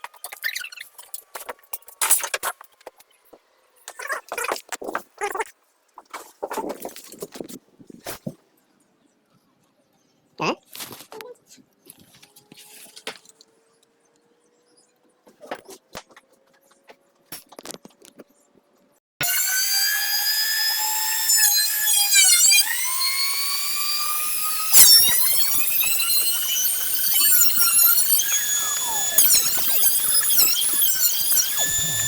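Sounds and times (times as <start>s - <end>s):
electric power tool whining: 19.2s - 32.0s.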